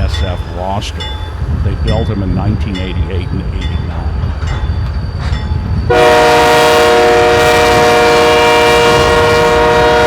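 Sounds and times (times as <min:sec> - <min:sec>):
locomotive air horn chord: 0:05.9 - 0:10.0.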